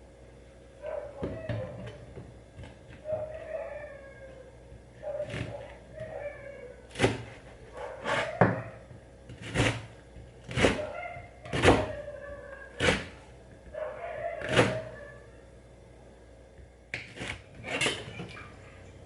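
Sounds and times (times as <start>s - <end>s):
knife chopping on cutting board: 8.0s - 8.7s, 9.3s - 9.9s, 10.5s - 10.8s, 11.5s - 11.9s, 12.8s - 13.1s.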